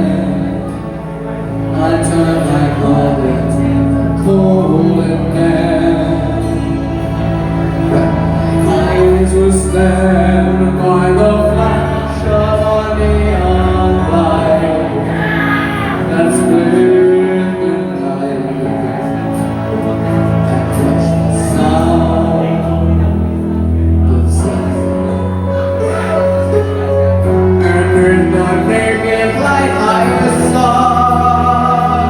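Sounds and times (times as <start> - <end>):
karaoke backing track: 0.0 - 32.0
person singing slow melody: 0.0 - 32.0.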